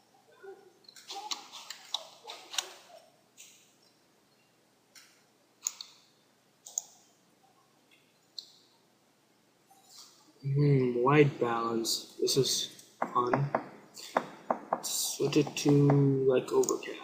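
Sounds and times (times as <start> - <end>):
computer mouse clicking: 5.0 - 6.0, 6.6 - 7.0.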